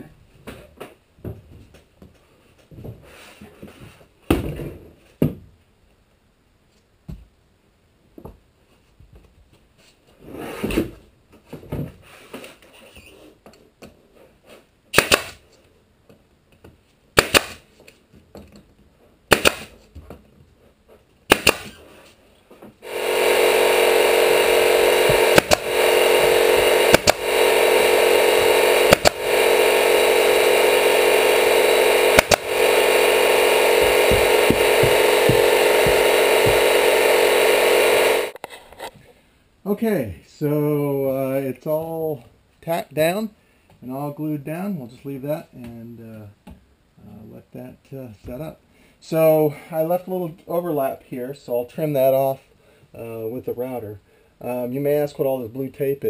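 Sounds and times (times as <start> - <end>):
nail gun firing: 14.9 - 15.4, 17.2 - 17.6, 19.3 - 19.8, 21.3 - 21.8, 25.0 - 29.6, 32.0 - 33.2
air compressor running: 22.8 - 38.4.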